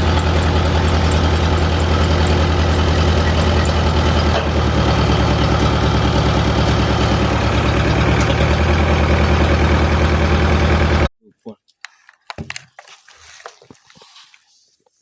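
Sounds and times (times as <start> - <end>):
heavy engine running: 0.0 - 11.1.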